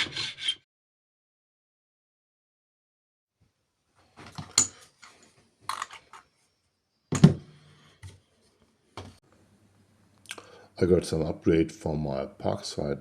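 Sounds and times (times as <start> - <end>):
loud thunk: 7.1 - 7.5.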